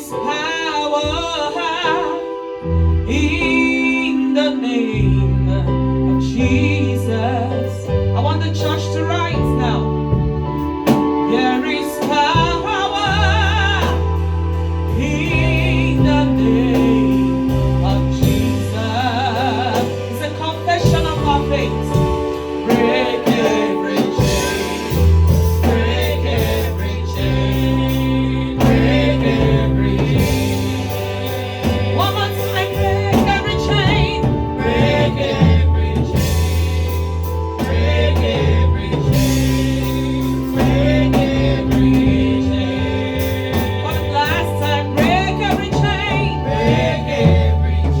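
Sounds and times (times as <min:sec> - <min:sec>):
bass and keyboard chords: 0:00.0 - 0:48.0
gospel singing: 0:00.0 - 0:48.0
steady beat: 0:19.4 - 0:48.0.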